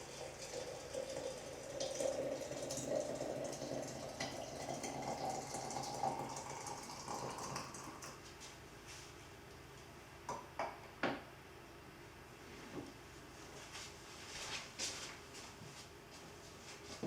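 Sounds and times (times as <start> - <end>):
water running into container: 0.0 - 8.2.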